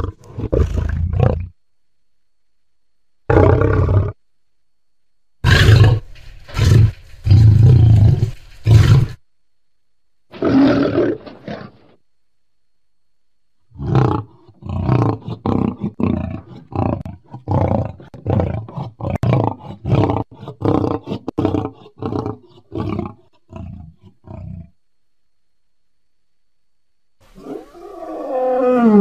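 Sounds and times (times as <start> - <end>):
lion roaring: 3.3 - 4.2, 5.4 - 9.2, 10.3 - 12.0, 13.7 - 24.8, 27.3 - 29.0.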